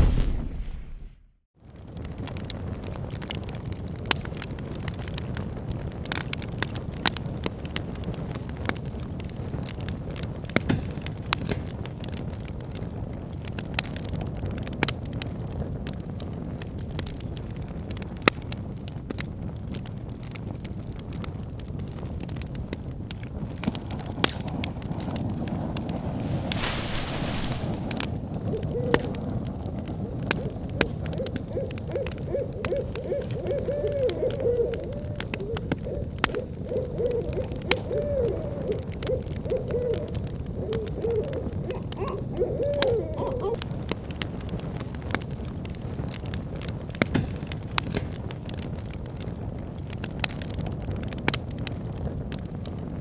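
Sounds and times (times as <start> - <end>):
bonfire crackling and popping: 0.0 - 53.0
brief hiss: 26.0 - 28.1
owl hooting: 26.2 - 43.6.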